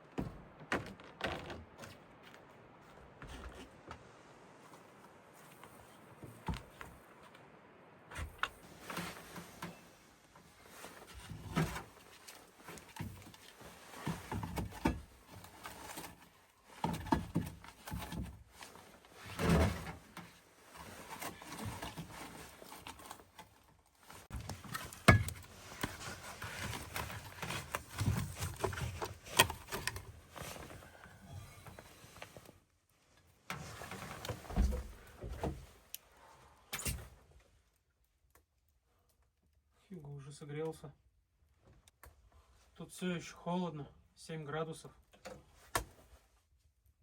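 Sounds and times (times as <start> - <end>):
knocks and thuds of handling: 0.0 - 2.0, 24.3 - 30.8, 33.9 - 35.7.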